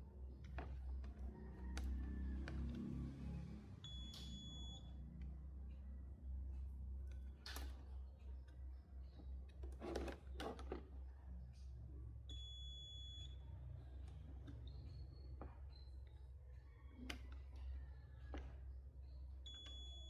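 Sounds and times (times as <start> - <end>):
low steady hum: 2.5 - 16.2
high electronic beep: 3.8 - 4.9, 12.3 - 13.3, 19.5 - 20.0.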